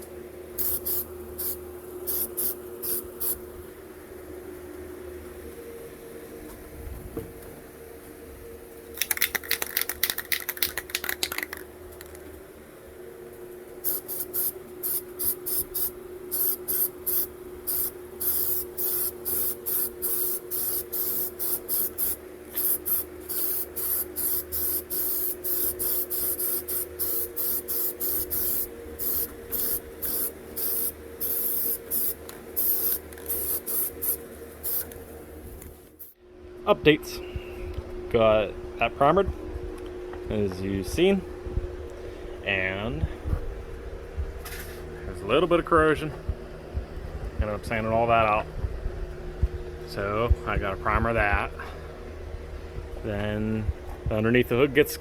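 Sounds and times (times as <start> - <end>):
steady hum: 0.0 - 55.0
spray paint hissing bursts: 0.6 - 3.4, 13.8 - 36.2.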